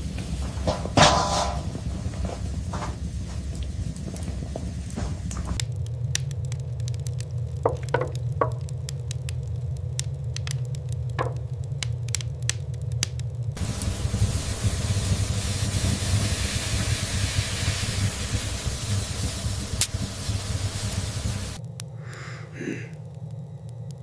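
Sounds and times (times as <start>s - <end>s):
wind hissing: 0.0s - 7.5s, 13.5s - 23.8s
fire crackling and popping: 0.0s - 24.0s
low rumble: 0.0s - 24.0s.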